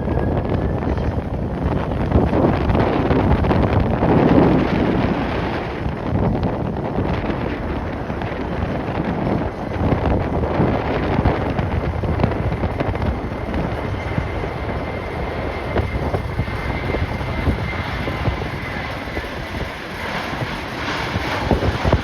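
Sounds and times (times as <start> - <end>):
jet engines running: 0.0 - 22.0
wind buffeting microphone: 0.0 - 22.0.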